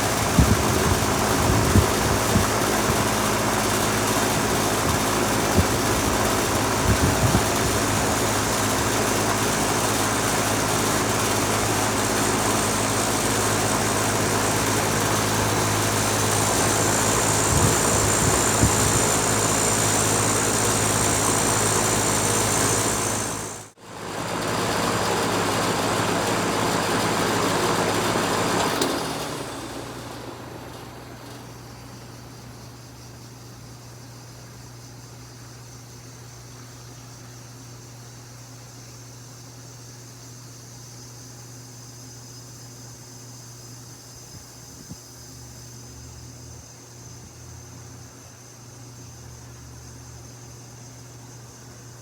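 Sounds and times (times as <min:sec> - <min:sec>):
compressor hum: 0:00.0 - 0:35.1
outdoor fan rushing: 0:00.0 - 0:52.0.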